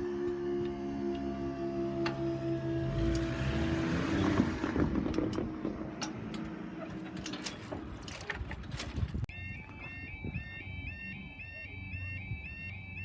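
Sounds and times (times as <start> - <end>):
vehicles rumbling over crossing: 0.0 - 10.1
knocks from vehicles: 4.2 - 6.0
level crossing alarm tones: 9.3 - 13.0
warbling level crossing alarm: 9.3 - 13.0.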